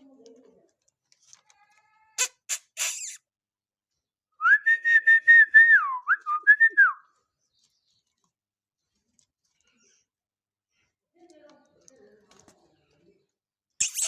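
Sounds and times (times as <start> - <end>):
parrot harsh squawks: 2.2 - 3.2.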